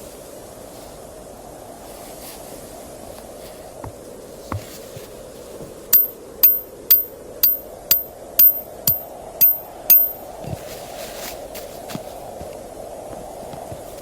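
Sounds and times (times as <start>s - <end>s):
hammer striking metal: 6.0s - 10.3s.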